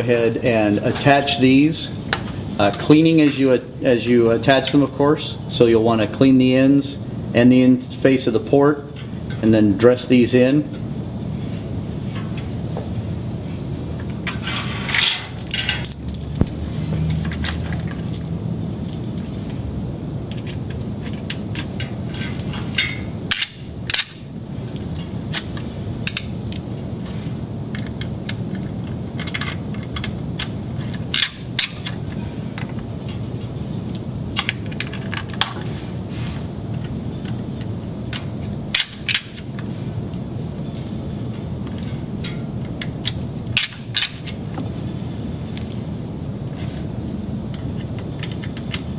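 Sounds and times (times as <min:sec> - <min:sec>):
low background noise: 0:00.0 - 0:48.9
connectors clicking into ports: 0:36.7 - 0:44.7, 0:47.5 - 0:48.9.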